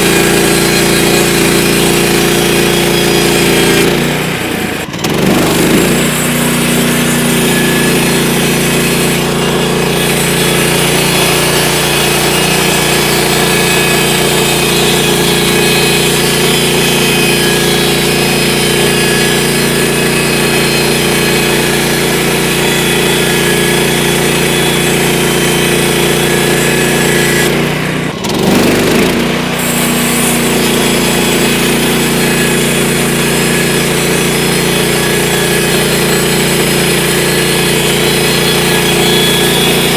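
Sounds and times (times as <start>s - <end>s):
band sawmill sawing log: 0.0s - 39.9s.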